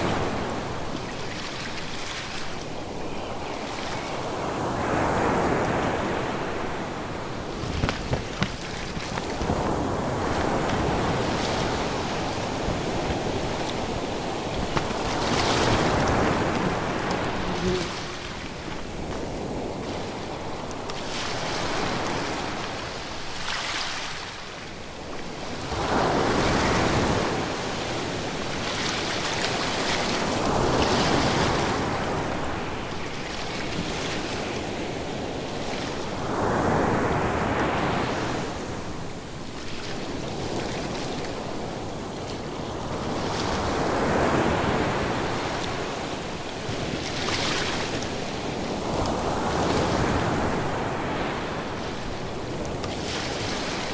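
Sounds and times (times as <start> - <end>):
ocean waves breaking: 4.8 - 21.9.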